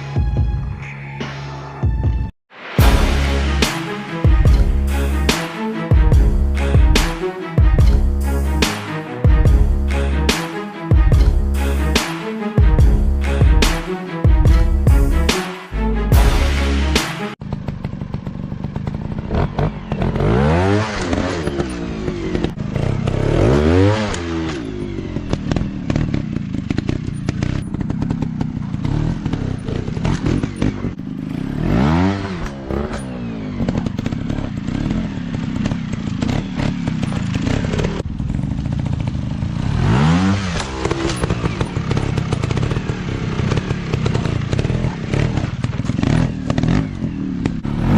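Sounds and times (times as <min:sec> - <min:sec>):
dirt bike engine revving: 0:16.2 - 0:47.9.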